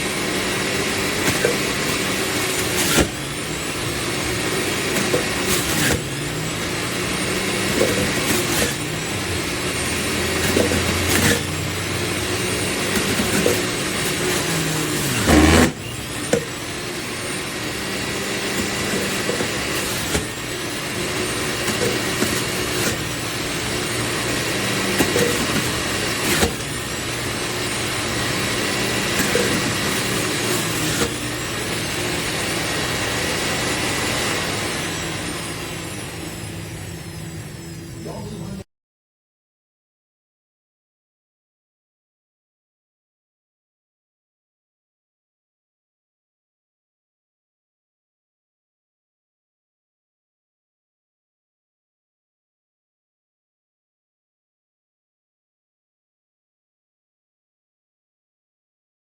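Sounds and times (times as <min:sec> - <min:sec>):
juicer motor humming and whining: 0:00.0 - 0:38.6.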